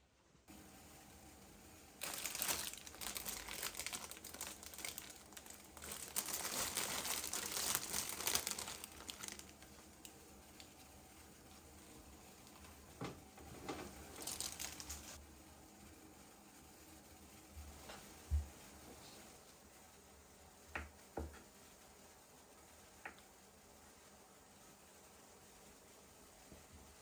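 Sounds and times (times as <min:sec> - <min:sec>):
packaging crinkling: 0:02.0 - 0:10.8, 0:13.6 - 0:15.2.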